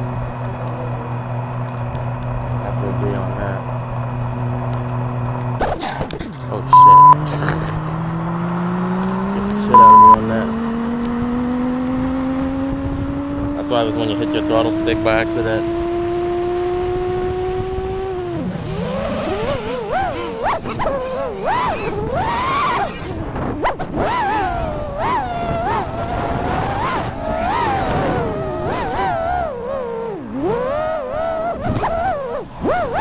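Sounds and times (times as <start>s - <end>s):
quadcopter motors humming: 0.0s - 33.0s.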